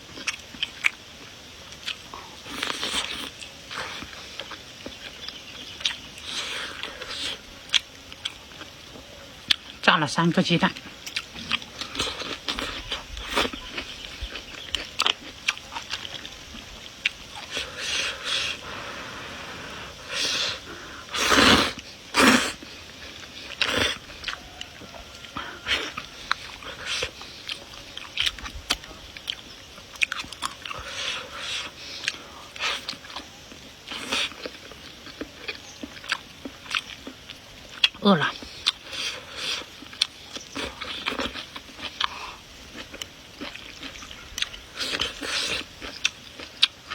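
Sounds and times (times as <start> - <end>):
chewing and crunching food: 0.0 - 46.9
drawn-out slurping noise: 10.8 - 35.4.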